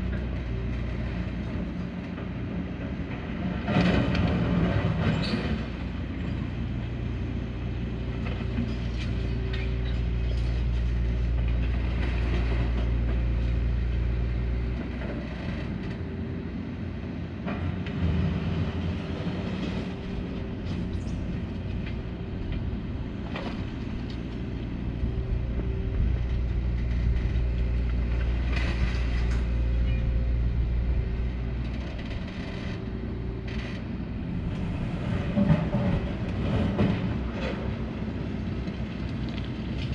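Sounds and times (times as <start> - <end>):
excavator diesel engine running: 0.0 - 39.9
excavator bucket clanks and creaks: 3.6 - 6.4, 26.0 - 30.4, 31.6 - 37.9.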